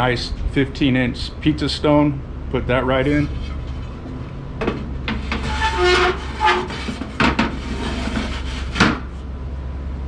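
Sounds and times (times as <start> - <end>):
stone scraping against metal: 3.1 - 9.2.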